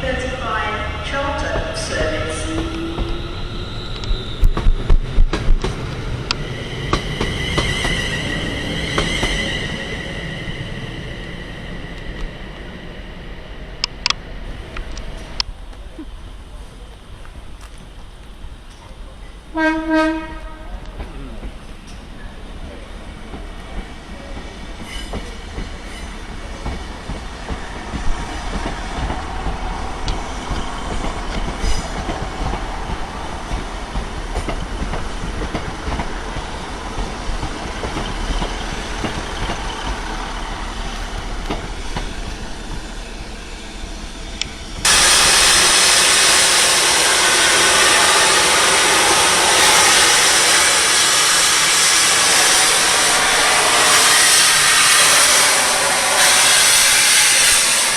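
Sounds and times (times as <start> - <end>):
train rumbling along track: 0.0 - 57.9
loud steady hiss: 42.8 - 57.9.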